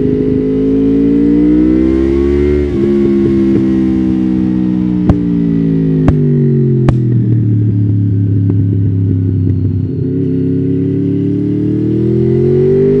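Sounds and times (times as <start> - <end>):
motorcycle engine running under load: 0.0 - 13.0.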